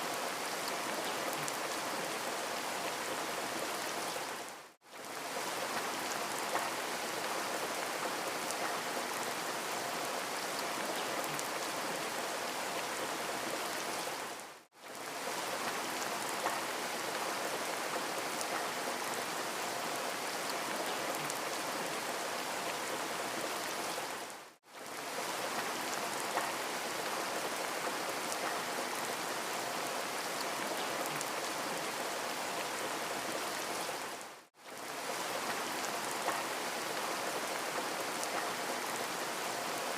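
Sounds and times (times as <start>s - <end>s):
faint raindrop ticks: 5.7s - 6.9s, 8.4s - 8.9s, 15.6s - 16.8s, 25.5s - 26.7s, 27.8s - 28.7s, 35.4s - 36.6s, 37.8s - 38.6s.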